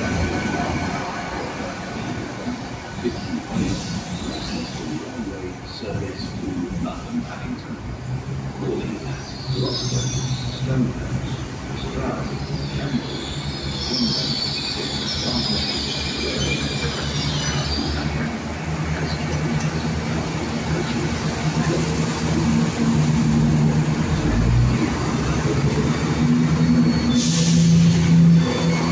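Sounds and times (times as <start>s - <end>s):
carriages rumbling past: 0.0s - 28.9s
train engine drone: 0.0s - 28.9s
high wheel squeal: 12.3s - 18.4s, 26.3s - 28.9s.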